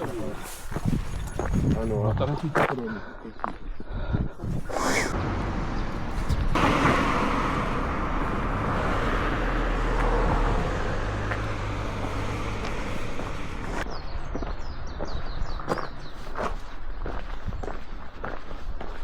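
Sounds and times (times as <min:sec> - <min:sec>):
road vehicle hum: 0:04.7 - 0:16.9
light footsteps: 0:08.2 - 0:19.0.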